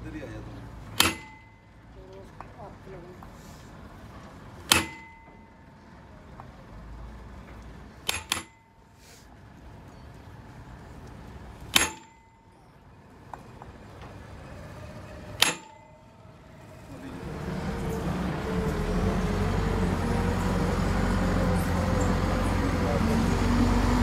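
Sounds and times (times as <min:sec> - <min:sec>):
sharp metal strikes ringing: 0:01.0 - 0:01.7, 0:04.7 - 0:05.6, 0:08.1 - 0:08.6, 0:11.7 - 0:12.6, 0:15.4 - 0:16.0.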